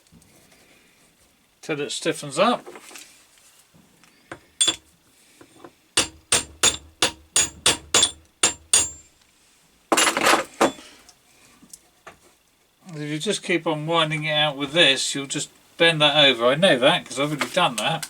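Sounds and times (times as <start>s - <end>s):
hammer tapping metal: 4.6s - 4.8s, 6.0s - 9.0s.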